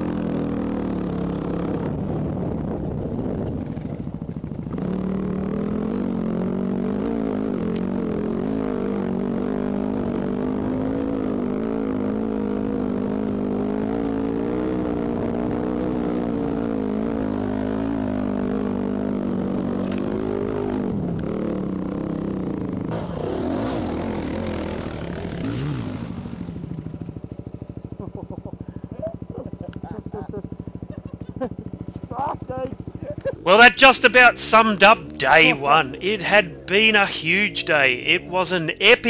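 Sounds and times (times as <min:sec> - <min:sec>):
dirt bike engine revving: 0:00.0 - 0:02.5, 0:04.7 - 0:26.6, 0:33.3 - 0:39.0.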